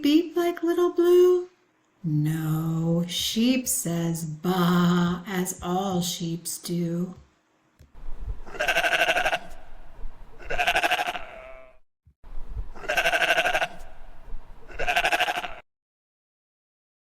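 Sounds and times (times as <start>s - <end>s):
sheep bleating: 8.4s - 9.6s, 10.4s - 11.8s, 12.8s - 14.0s, 14.7s - 15.6s.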